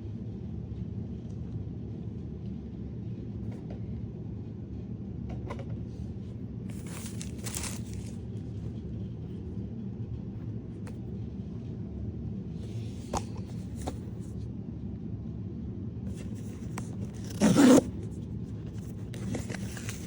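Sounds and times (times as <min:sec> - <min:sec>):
packaging clicks: 0:06.7 - 0:08.2, 0:16.1 - 0:17.9, 0:18.7 - 0:20.0
wrapping crinkling: 0:06.7 - 0:08.2, 0:18.7 - 0:20.0.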